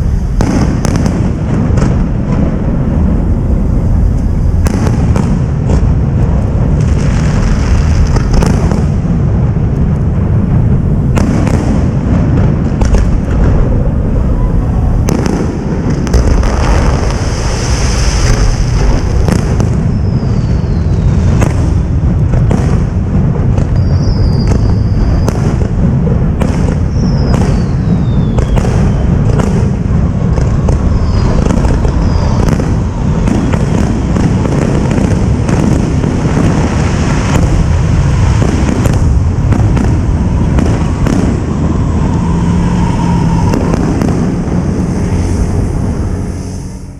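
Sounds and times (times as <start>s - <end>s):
firework bursts and booms: 0.0s - 46.9s
low rumble: 0.0s - 46.9s
falling firework whistles: 14.3s - 22.7s, 23.6s - 25.8s, 26.4s - 46.9s.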